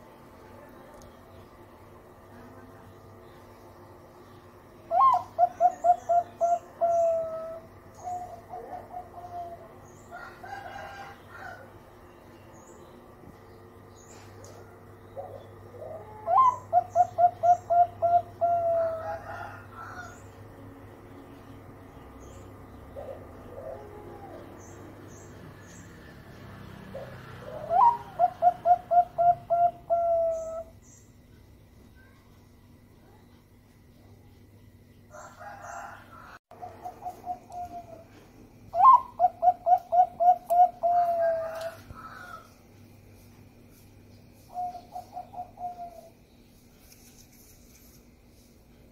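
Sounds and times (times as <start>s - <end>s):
dove cooing: 4.9s - 11.6s, 14.1s - 20.2s, 22.7s - 25.2s, 26.7s - 30.8s, 35.2s - 42.4s, 44.4s - 46.2s.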